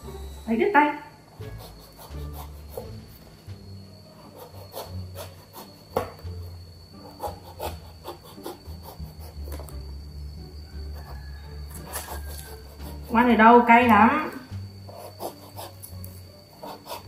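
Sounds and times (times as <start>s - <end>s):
knife scraping fruit rind: 1.4s - 3.4s, 4.2s - 9.8s, 10.8s - 13.3s, 14.9s - 17.0s.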